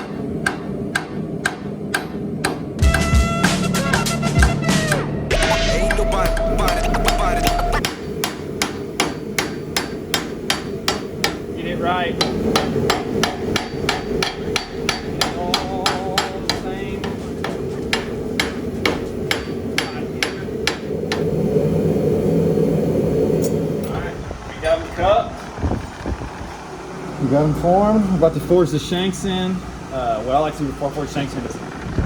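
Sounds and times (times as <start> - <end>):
hammer striking steel on anvil: 0.0 - 21.3
steady rushing noise: 0.0 - 32.0.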